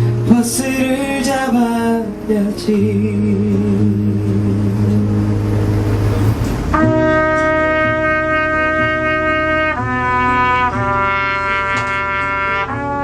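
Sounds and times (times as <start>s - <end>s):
person singing: 0.0s - 5.4s
low sustained bass note: 1.1s - 12.3s
brass section chord: 4.8s - 13.0s.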